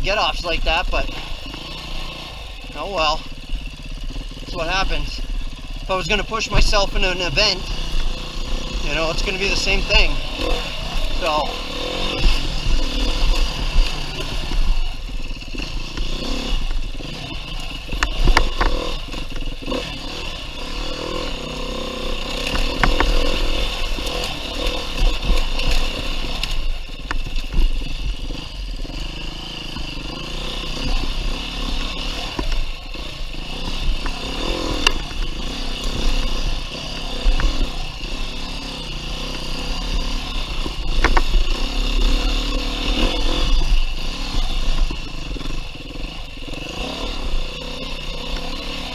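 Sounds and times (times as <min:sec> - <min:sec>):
dirt bike engine revving: 0:00.0 - 0:48.9
sharp knocks and clatter: 0:17.8 - 0:19.6, 0:22.3 - 0:28.2, 0:39.3 - 0:42.0.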